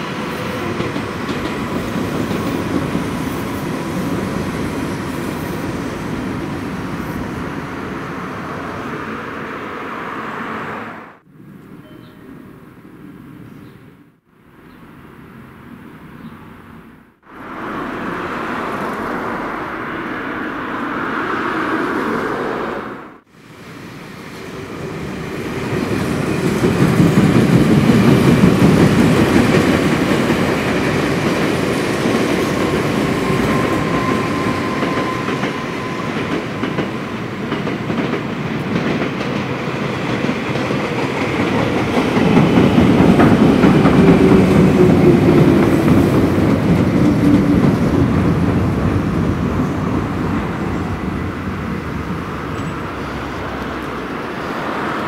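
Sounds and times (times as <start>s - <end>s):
train wheels clacking over rail joints: 0.1s - 3.8s, 25.8s - 49.0s
rumble from steel bridge: 17.2s - 23.3s, 36.5s - 55.0s.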